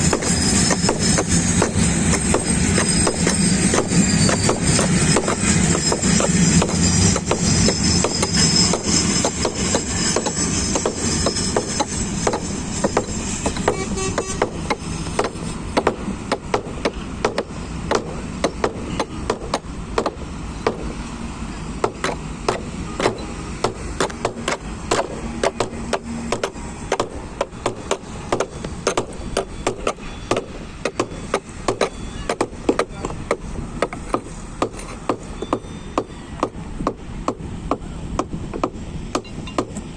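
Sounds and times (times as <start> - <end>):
train low rumble: 0.0 - 39.9
train wheels clacking over rail joints: 0.0 - 39.9.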